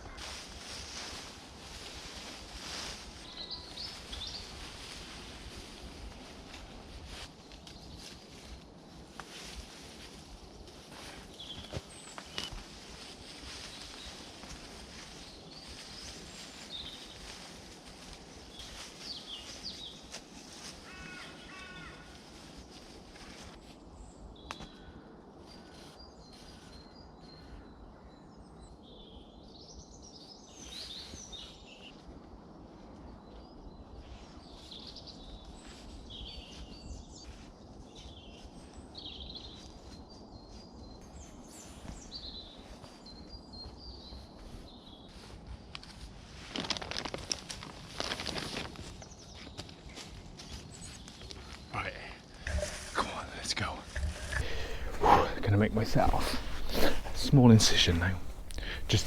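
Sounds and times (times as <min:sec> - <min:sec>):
small birds twittering: 0:02.1 - 0:06.2, 0:11.1 - 0:17.5, 0:50.4 - 0:59.0
low background noise: 0:47.2 - 0:59.0.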